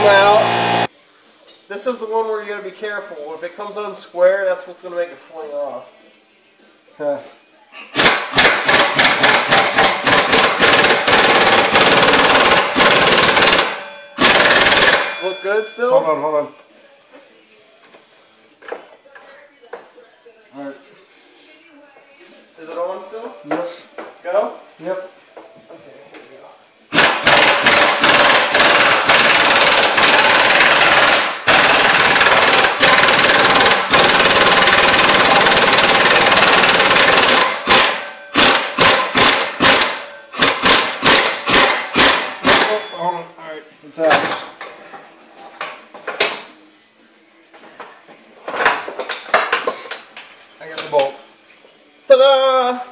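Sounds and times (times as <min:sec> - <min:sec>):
impact wrench hammering: 0:08.0 - 0:15.3, 0:26.9 - 0:43.0.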